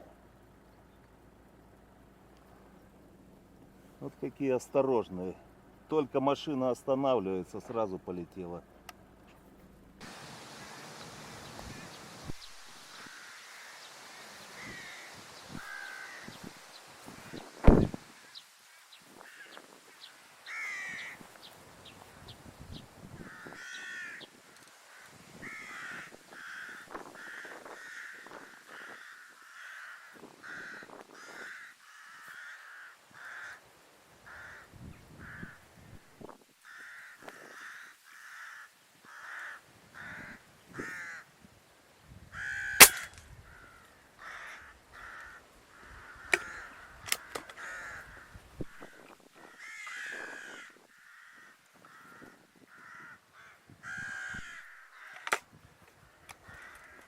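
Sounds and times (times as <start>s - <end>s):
crows cawing: 11.5s - 12.0s, 12.7s - 17.6s, 19.2s - 19.7s, 20.4s - 21.2s, 23.2s - 35.7s, 36.6s - 41.3s, 42.4s - 55.5s, 56.1s - 57.0s
loud sharp crack: 42.8s - 43.3s.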